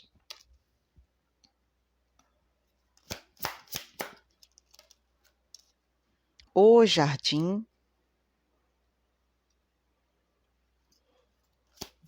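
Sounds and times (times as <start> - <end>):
cards snapping on a table: 3.0 - 5.0, 11.7 - 12.0.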